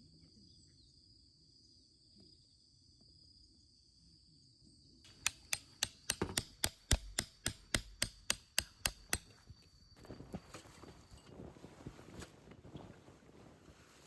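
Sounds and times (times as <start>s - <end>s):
hammer striking: 5.1s - 9.4s
soft rustling: 9.2s - 14.0s.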